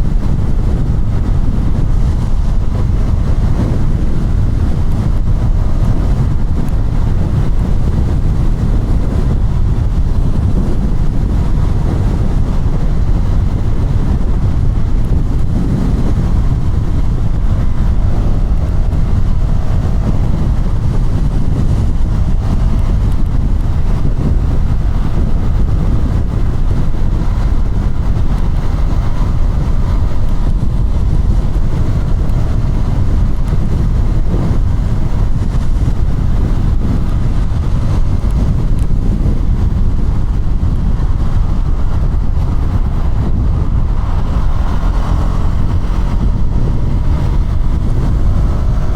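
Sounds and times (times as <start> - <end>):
motorcycle engine running: 0.0 - 48.9
wind noise on microphone: 0.0 - 48.9.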